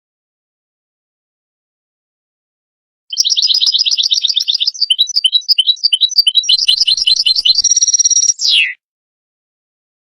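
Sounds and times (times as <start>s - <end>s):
goldfinch twittering calls: 3.1s - 8.8s.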